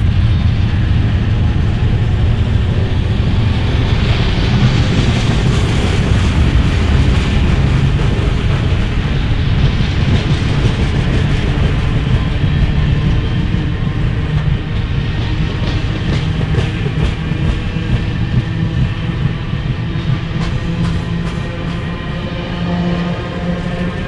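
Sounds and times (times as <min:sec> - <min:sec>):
wheels clacking over rail joints: 0:00.0 - 0:22.0
coal train rolling past: 0:00.0 - 0:24.0.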